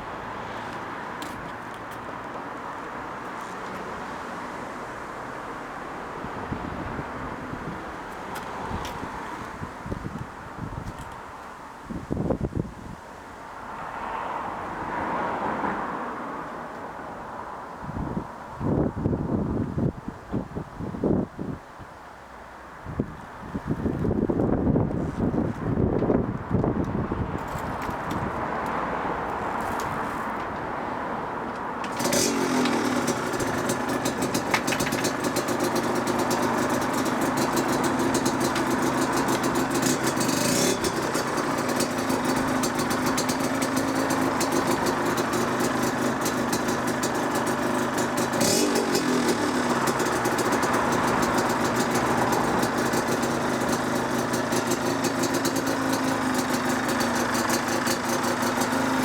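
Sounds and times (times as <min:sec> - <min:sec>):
two-stroke engine idling and revving: 0:31.8 - 0:59.0.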